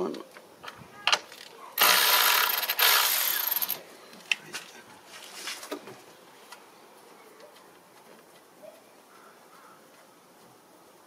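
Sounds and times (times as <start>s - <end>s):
tool rasping on fastener: 1.8s - 3.8s.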